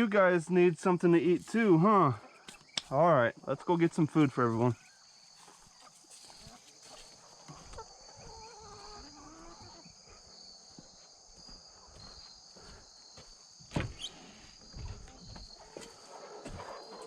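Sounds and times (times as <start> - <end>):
crickets droning: 0.0 - 17.0
footsteps thudding: 13.2 - 14.1, 14.7 - 16.7.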